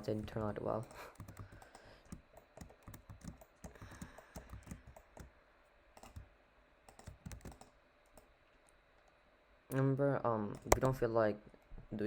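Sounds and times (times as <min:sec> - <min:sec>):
keyboard keystrokes: 0:00.0 - 0:05.3, 0:06.0 - 0:06.3, 0:06.9 - 0:08.3
mouse clicks: 0:10.5 - 0:11.0.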